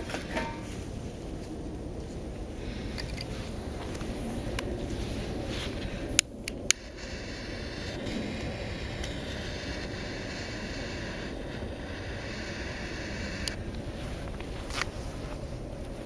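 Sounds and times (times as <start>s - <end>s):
fire crackles and snaps: 0.8s - 16.0s
wood fire rushing in stove: 3.2s - 16.0s.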